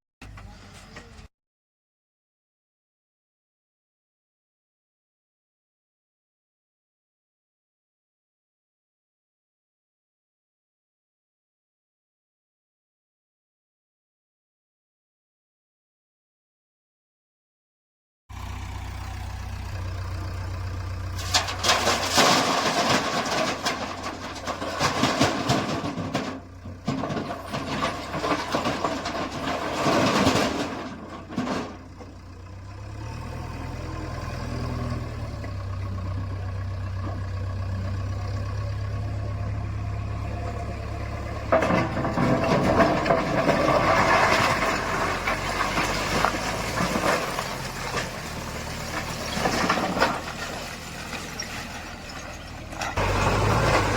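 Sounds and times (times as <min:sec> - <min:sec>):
diesel engine running: 0:18.3 - 0:53.9
digger working noise: 0:18.3 - 0:53.9.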